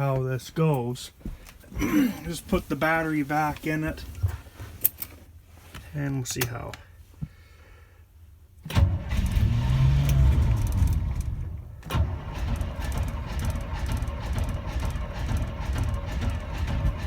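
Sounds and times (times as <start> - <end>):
engine cold-starting and running: 8.6 - 17.0.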